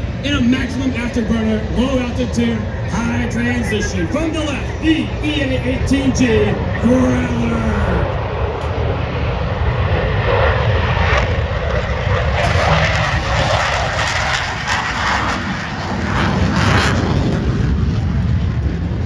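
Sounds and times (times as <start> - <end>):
jet engine afterburner roar: 0.0 - 19.0.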